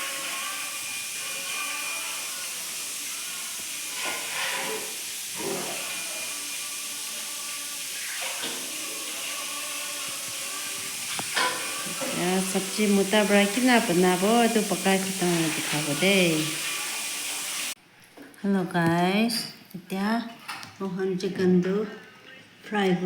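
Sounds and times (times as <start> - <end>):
chicken frying in hot oil: 0.0 - 17.8.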